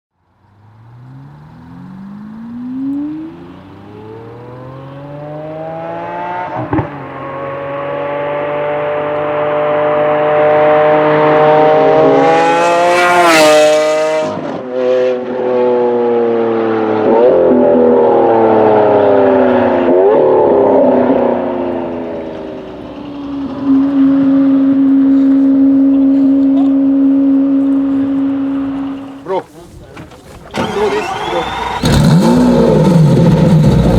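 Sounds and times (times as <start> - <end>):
sports car accelerating: 0.2 - 33.9
exhaust crack at gear shift: 27.6 - 33.9.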